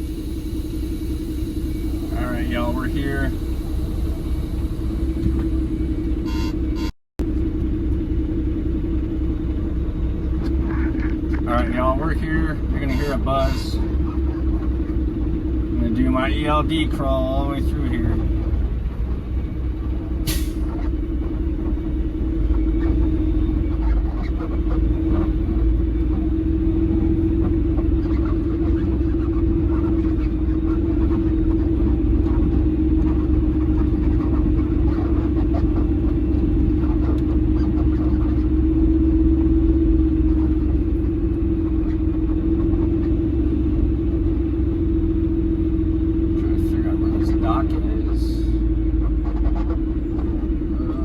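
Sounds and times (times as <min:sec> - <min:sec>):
steady buzzing tone: 0:00.0 - 0:07.4
truck diesel engine running: 0:00.0 - 0:51.0.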